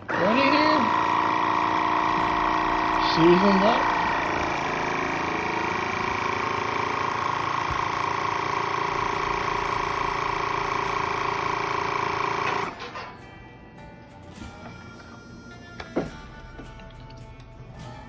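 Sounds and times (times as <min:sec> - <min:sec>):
electric pump motor whine: 0:00.0 - 0:13.6.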